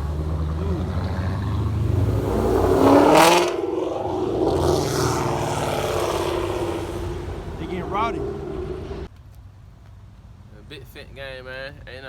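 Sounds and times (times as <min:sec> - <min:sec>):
car engine revving: 0:00.0 - 0:09.1.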